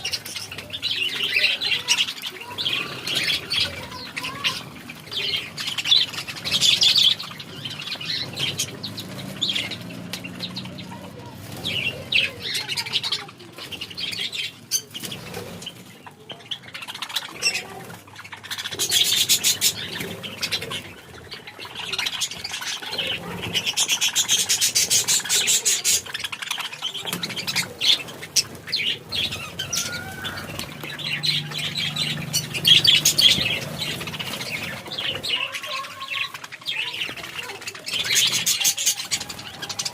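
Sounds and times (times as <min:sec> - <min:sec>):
birds chirping and tweeting: 0:00.0 - 0:39.9.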